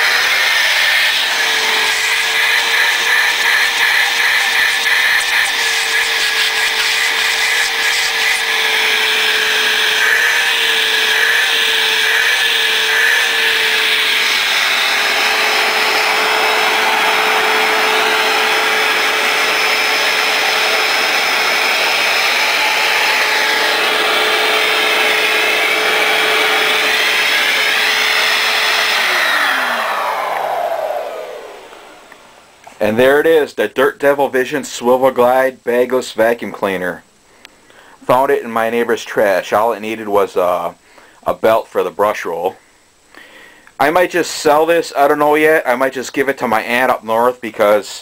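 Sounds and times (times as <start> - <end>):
vacuum motor spinning down: 0.0 - 32.6
upright vacuum cleaner running: 0.0 - 32.7.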